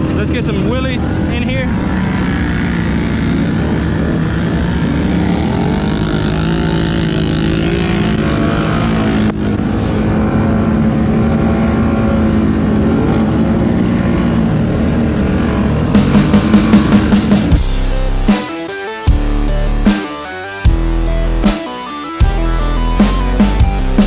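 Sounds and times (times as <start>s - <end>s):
quad engines revving: 0.0s - 24.0s.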